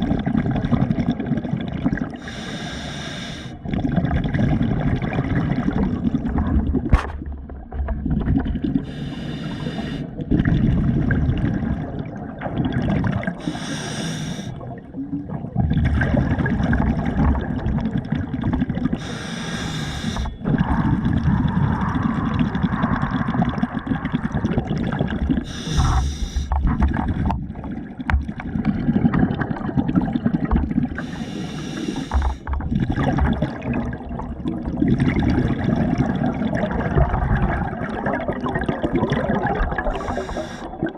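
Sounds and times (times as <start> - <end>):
water sloshing and gurgling: 0.0 - 40.9
short hissing burst: 19.0 - 20.3, 25.5 - 26.5.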